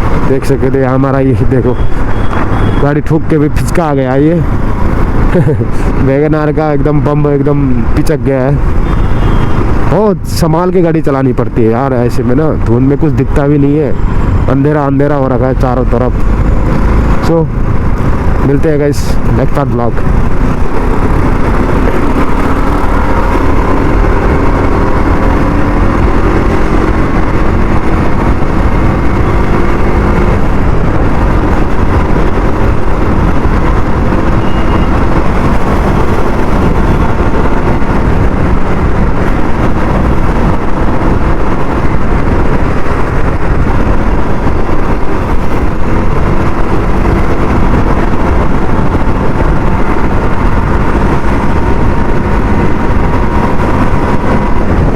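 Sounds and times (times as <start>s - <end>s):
wind rushing on microphone: 0.0s - 54.9s
motorcycle engine running: 20.0s - 54.9s.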